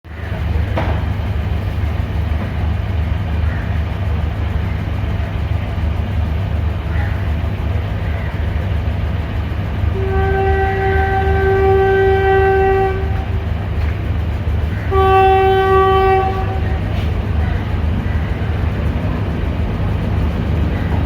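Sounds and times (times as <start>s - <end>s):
diesel locomotive engine idling: 0.0s - 21.0s
locomotive air horn: 9.9s - 13.4s, 14.8s - 17.2s.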